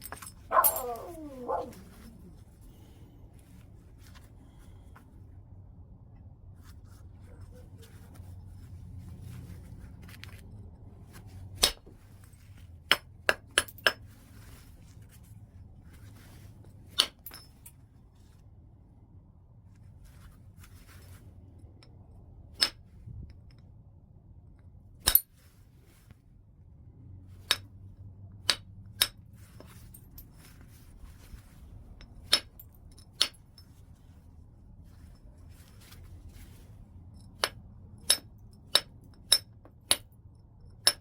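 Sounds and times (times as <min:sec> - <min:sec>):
stone knapping clinks: 0:00.0 - 0:01.8.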